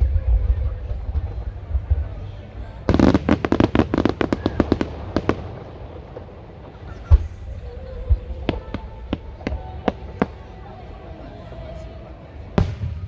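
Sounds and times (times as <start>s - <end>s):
deep firework boom: 0.0s - 6.3s
fireworks cracking: 0.0s - 13.0s.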